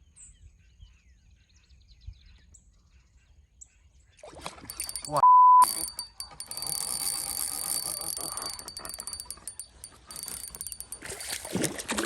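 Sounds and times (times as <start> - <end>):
thin high-pitched tone: 4.7 - 11.4
fishing reel ticking: 4.7 - 11.6.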